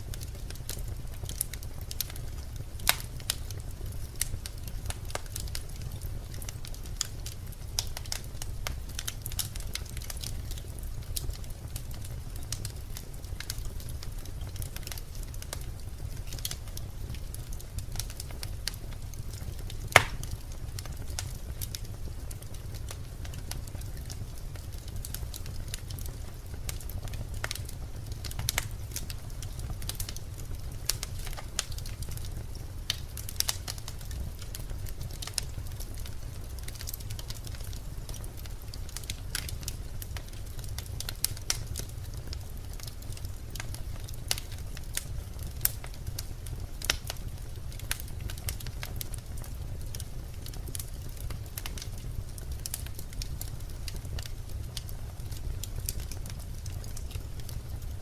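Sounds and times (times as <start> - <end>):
fire crackles and pops: 0.0 - 58.0
flames rumbling: 0.0 - 58.0.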